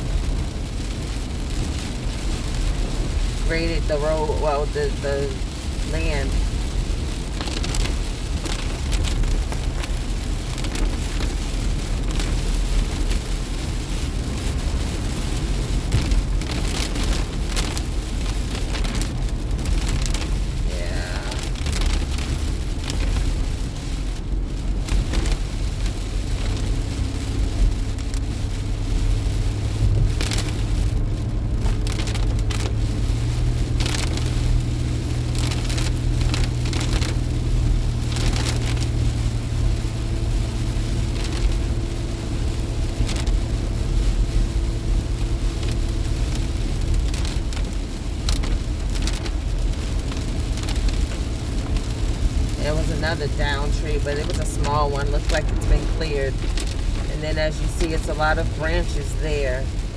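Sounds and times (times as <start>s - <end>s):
heavy rain on car: 0.0s - 59.9s
road and engine rumble: 0.0s - 59.9s
low steady hum: 42.3s - 59.9s.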